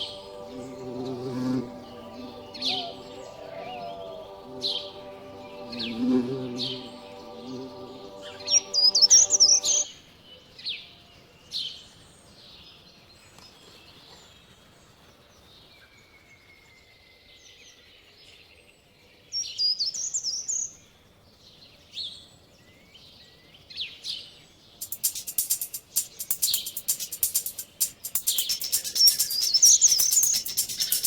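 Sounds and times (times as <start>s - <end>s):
songbird twittering: 0.0s - 9.8s, 24.8s - 31.0s
bird chirps: 0.0s - 9.9s, 24.8s - 31.0s.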